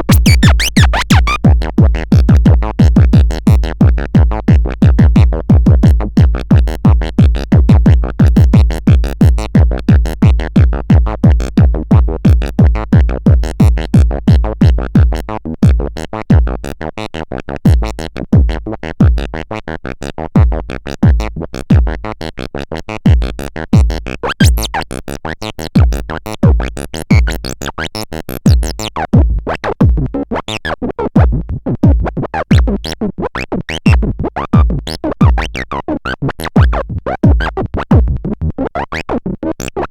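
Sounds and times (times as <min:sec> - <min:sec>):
electronic synthesizer music: 0:00.0 - 0:01.4.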